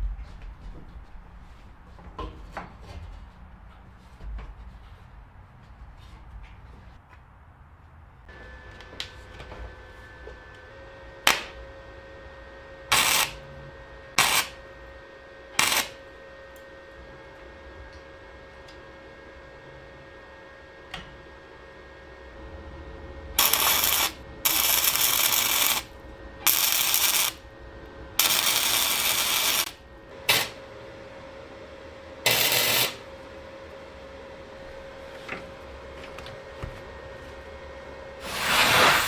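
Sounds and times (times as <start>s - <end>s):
loud hissing bursts: 38.2s - 39.0s.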